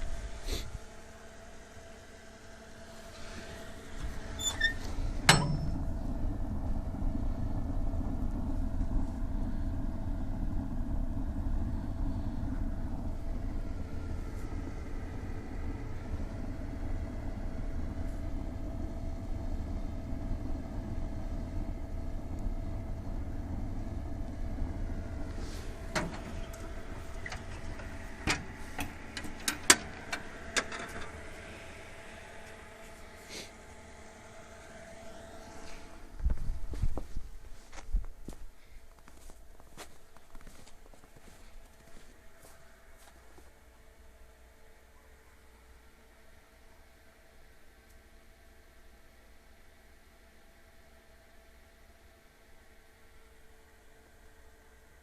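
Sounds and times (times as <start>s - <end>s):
boiler burning with low rumble: 0.0s - 55.0s
sharp clicks and knocks: 5.3s - 5.8s, 27.2s - 31.1s.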